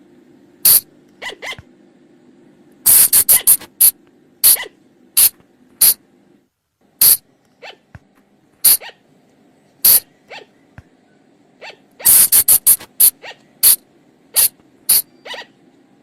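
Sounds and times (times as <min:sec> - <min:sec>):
shrill animal cries: 0:01.2 - 0:01.6, 0:04.4 - 0:04.8, 0:07.6 - 0:07.9, 0:08.6 - 0:09.0, 0:09.9 - 0:10.6, 0:11.6 - 0:15.6.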